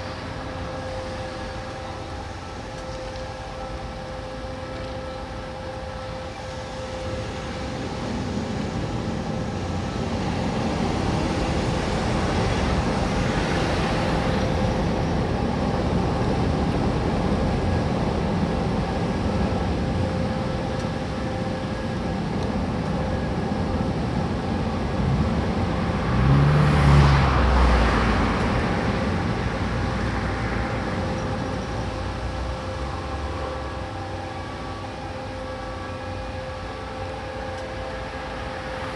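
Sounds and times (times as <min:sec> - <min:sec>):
engine hum: 0:00.0 - 0:38.9
vehicle passing close by: 0:24.9 - 0:31.1.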